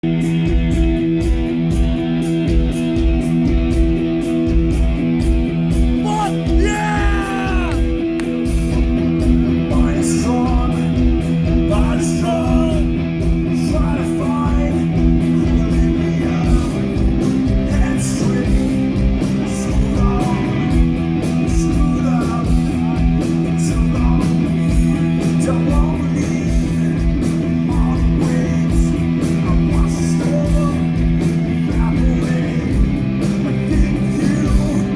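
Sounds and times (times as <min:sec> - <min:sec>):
electric guitars and bass: 0:00.0 - 0:34.9
drum beat: 0:04.9 - 0:14.0
person singing: 0:06.0 - 0:08.3, 0:11.6 - 0:13.0.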